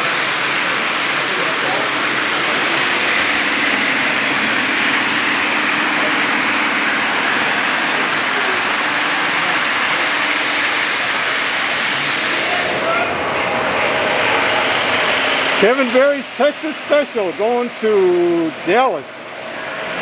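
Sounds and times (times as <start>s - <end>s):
model train wheels rolling: 0.0s - 20.0s.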